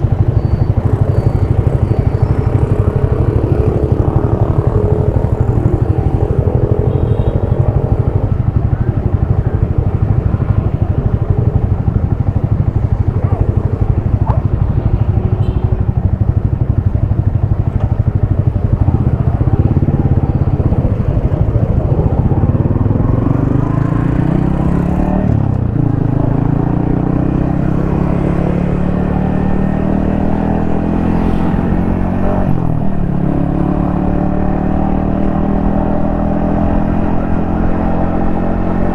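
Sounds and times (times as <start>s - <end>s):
single-cylinder motorcycle engine: 0.0s - 38.9s.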